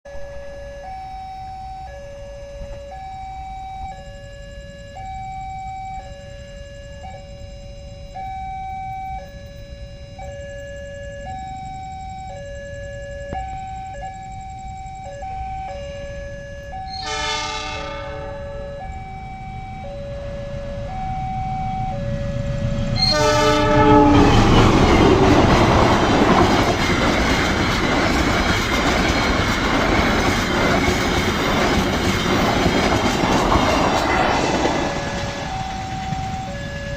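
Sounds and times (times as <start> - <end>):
locomotive horn: 15.0 - 18.9, 22.8 - 27.0
train wheels clattering on rails: 24.0 - 36.9.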